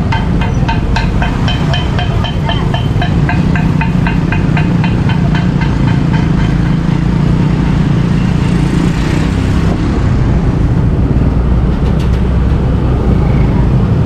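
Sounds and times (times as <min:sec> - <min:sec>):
rapid even ticking: 0:00.0 - 0:07.9
motorbike engine running: 0:00.0 - 0:12.8
traffic noise: 0:00.0 - 0:14.0.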